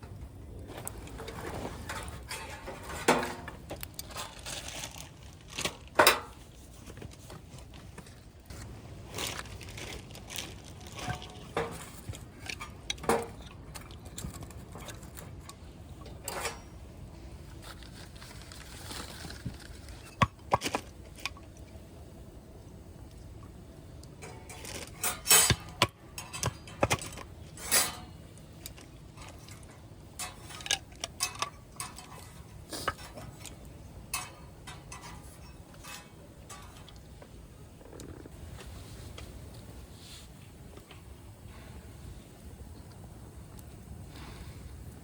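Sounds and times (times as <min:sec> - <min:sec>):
camp cookware clinking: 0:00.0 - 0:06.4, 0:10.3 - 0:17.1, 0:24.0 - 0:37.4.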